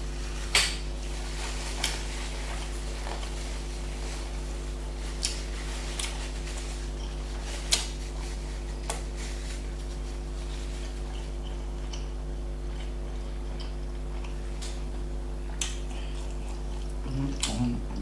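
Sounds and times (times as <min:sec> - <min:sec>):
steady low hum: 0:00.0 - 0:18.0
mouth clicks and smacks chewing: 0:11.1 - 0:17.8.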